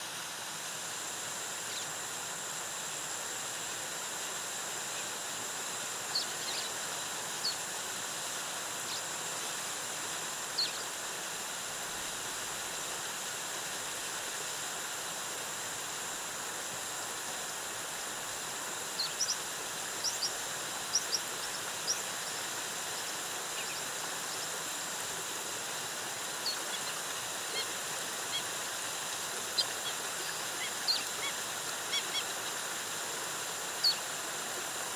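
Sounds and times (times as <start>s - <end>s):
waterfall rushing: 19.6s - 34.9s
bird chirps: 29.5s - 32.3s, 33.8s - 34.0s.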